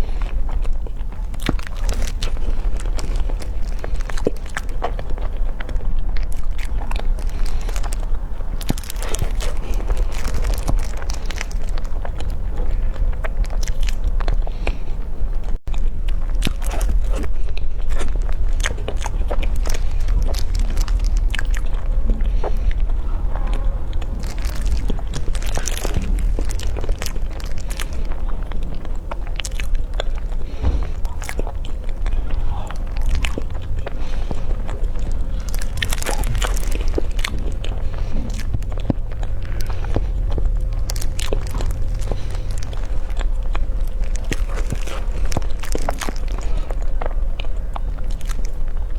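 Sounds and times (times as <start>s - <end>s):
low hum: 0.0s - 48.9s
person chewing crunchy food: 0.0s - 48.9s.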